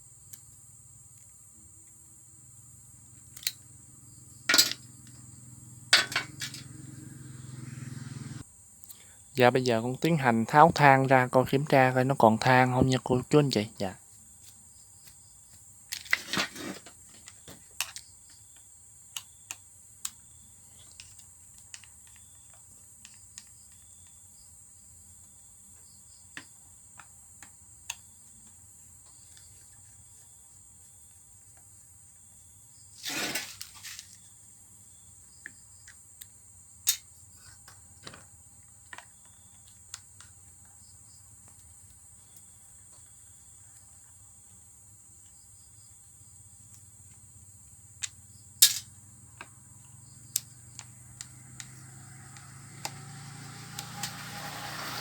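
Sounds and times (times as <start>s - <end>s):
insects chirring: 0.1s - 55.0s
hand tools clicking and tapping: 6.0s - 6.8s, 48.0s - 48.9s
rustling scrapes: 16.0s - 17.0s, 33.0s - 34.2s.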